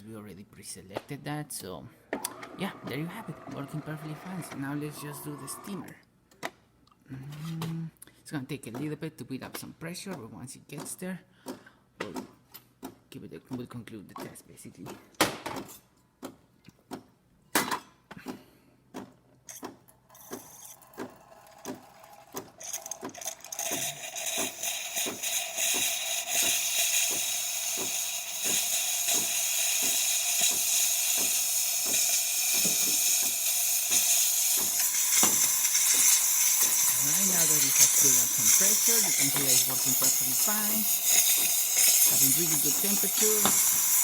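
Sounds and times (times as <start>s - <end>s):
espresso machine clicking pulses: 2.1s - 6.0s, 19.5s - 44.0s
steam hissing from wand: 22.6s - 44.0s.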